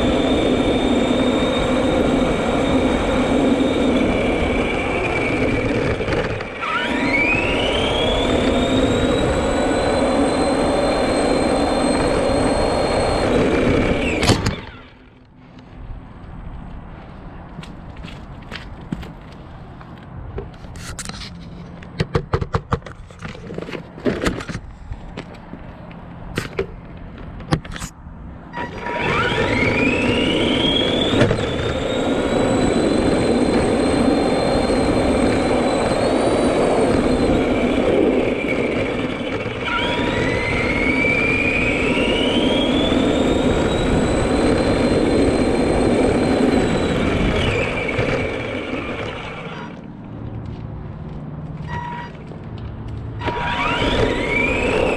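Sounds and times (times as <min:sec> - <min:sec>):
toy truck electric motor whining: 0:00.0 - 0:15.2, 0:28.5 - 0:49.9, 0:51.6 - 0:52.3, 0:53.2 - 0:54.9.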